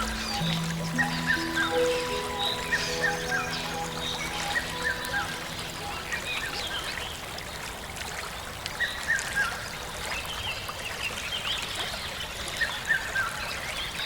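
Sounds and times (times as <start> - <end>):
birds chirping: 0.0 - 7.9.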